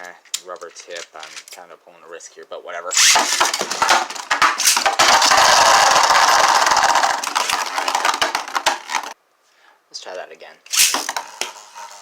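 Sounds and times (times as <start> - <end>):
spinning top launch: 3.0 - 9.2, 10.7 - 12.0
spinning tops clashing and clicking: 3.0 - 9.2, 10.7 - 12.0
spinning tops grinding whir: 3.0 - 9.2, 10.7 - 12.0.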